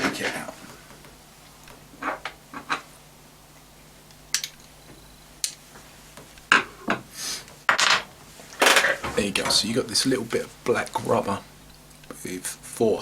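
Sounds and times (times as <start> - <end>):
small parts clicking and tapping: 4.1 - 4.8, 5.4 - 5.6.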